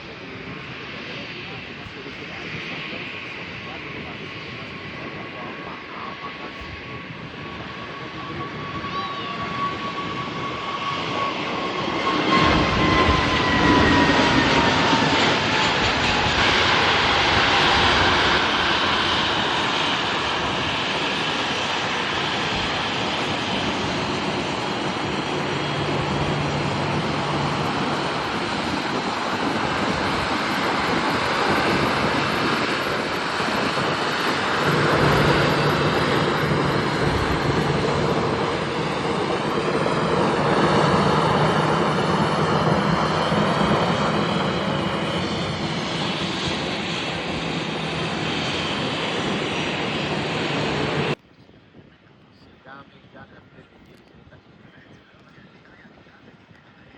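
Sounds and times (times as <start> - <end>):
jet engine whine: 0.0 - 56.9
jet noise rush: 8.0 - 51.2.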